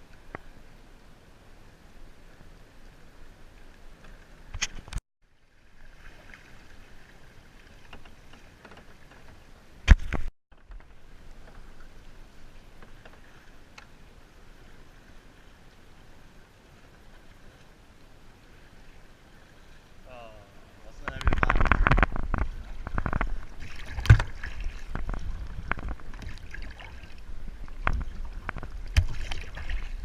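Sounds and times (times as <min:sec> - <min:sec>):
water splashing around kayak: 0:00.0 - 0:30.0.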